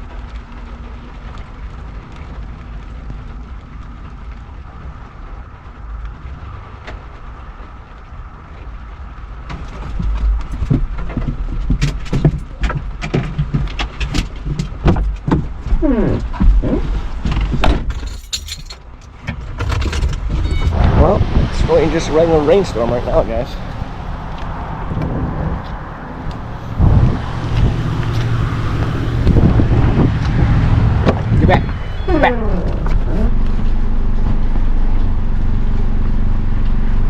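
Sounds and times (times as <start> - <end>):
wind and rain: 0.0 - 37.0
knocks and thumps: 9.4 - 21.4, 25.0 - 33.3
short squeaks: 20.3 - 20.8, 31.2 - 33.4.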